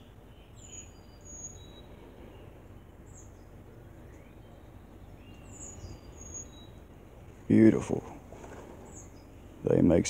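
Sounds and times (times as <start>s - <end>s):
high bird chirps: 0.0s - 7.2s
faint background noise: 0.0s - 10.0s.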